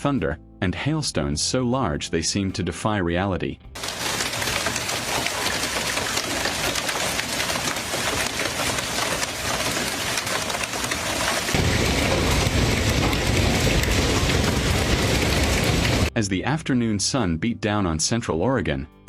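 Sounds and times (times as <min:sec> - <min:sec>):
hail and rain pelting: 0:03.8 - 0:16.1
deep rumble: 0:11.5 - 0:16.1.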